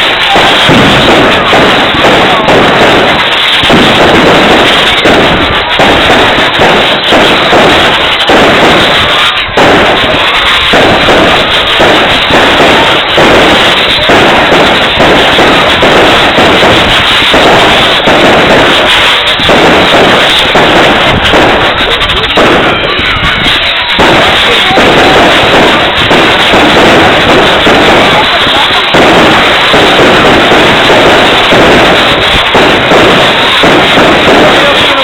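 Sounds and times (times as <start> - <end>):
fireworks bangs and crackling: 0.0 - 35.0.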